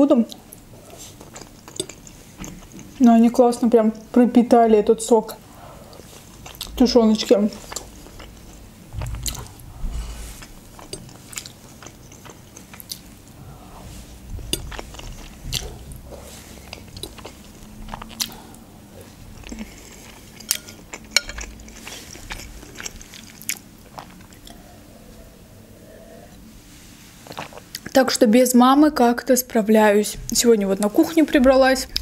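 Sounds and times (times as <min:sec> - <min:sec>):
chewing pasta: 0:00.3 - 0:04.1, 0:05.4 - 0:25.3, 0:27.2 - 0:28.0
wet mouth clicks and smacks: 0:10.8 - 0:13.1, 0:16.7 - 0:17.4.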